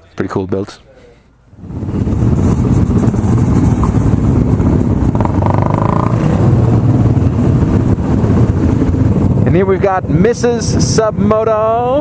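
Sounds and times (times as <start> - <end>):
motorcycle engines running: 1.8 - 11.1.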